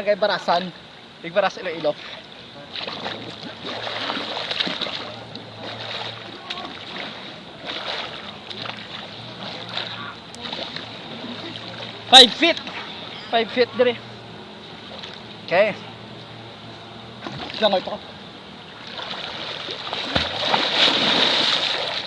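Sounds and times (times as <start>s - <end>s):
water splashing in a pool: 1.6s - 12.9s, 17.2s - 18.0s, 18.6s - 22.0s
people's voices: 4.8s - 18.3s.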